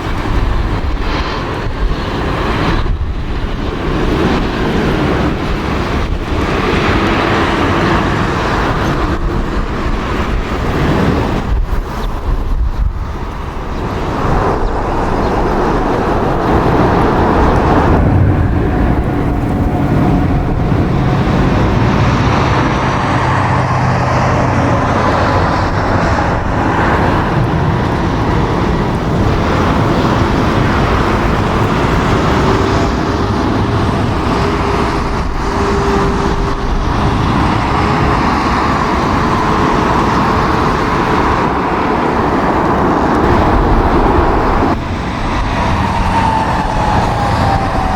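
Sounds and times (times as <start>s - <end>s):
faint jet engine whines: 0.0s - 47.9s
jet airliners roaring: 0.0s - 47.9s
strong wind: 0.0s - 47.9s.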